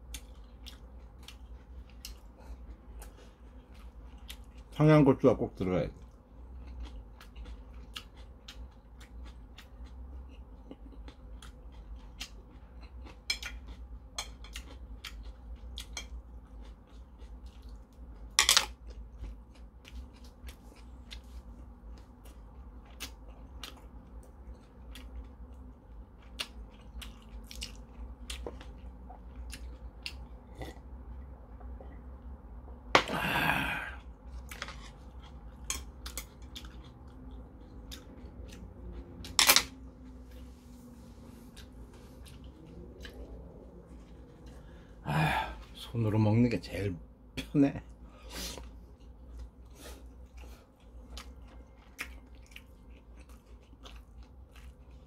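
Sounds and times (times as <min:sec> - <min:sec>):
person chewing and lip-smacking: 0:00.0 - 0:04.8, 0:06.1 - 0:32.8, 0:34.0 - 0:40.5, 0:41.4 - 0:44.9, 0:48.5 - 0:55.0.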